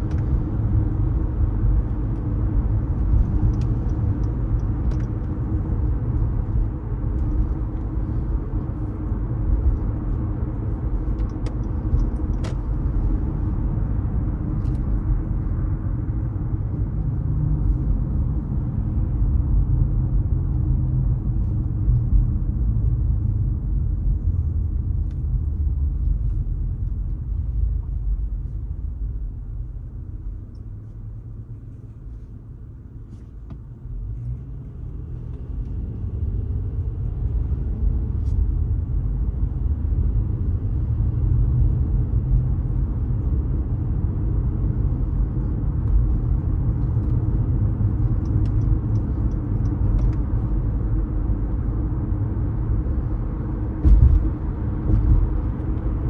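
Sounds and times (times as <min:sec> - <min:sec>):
car engine and road noise: 0:00.0 - 0:56.0
thump: 0:53.8 - 0:54.3.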